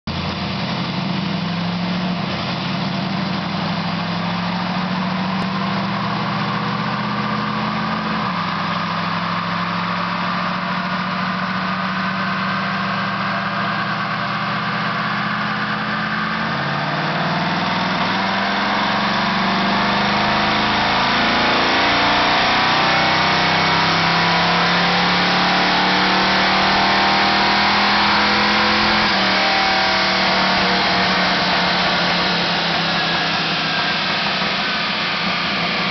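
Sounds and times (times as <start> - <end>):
engine running under load: 15.0 - 35.9.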